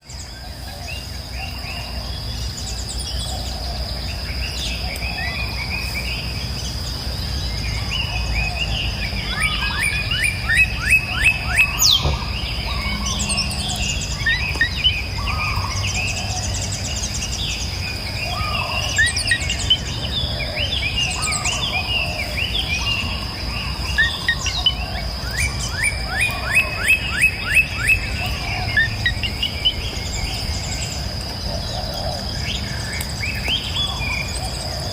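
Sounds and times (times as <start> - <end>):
birds calling and singing: 0.0 - 34.9
low outdoor rumble: 0.1 - 34.9
high-pitched insect drone: 9.5 - 17.4.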